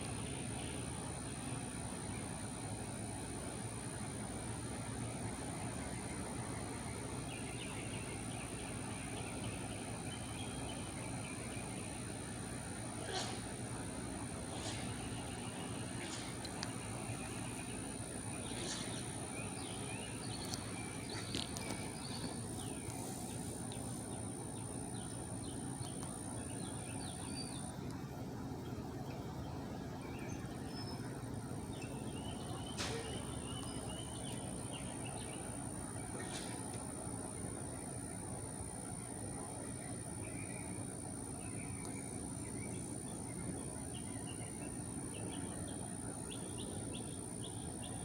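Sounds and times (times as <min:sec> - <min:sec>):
small birds chirping: 0:04.5 - 0:48.0.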